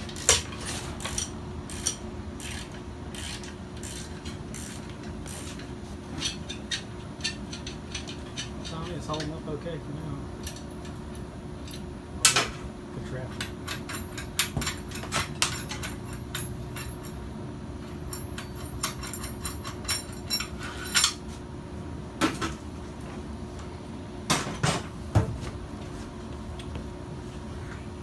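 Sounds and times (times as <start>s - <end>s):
steady low hum: 0.0s - 28.0s
metal tools clinking: 13.4s - 17.2s, 18.1s - 21.2s.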